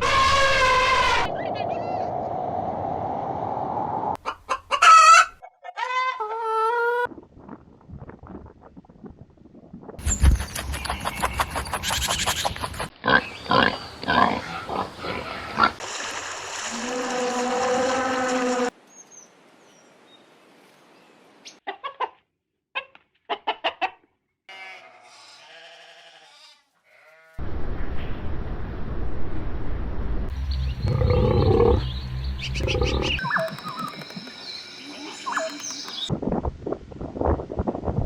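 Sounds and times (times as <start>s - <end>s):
farm animal calls: 30.8s - 31.9s, 32.6s - 36.1s.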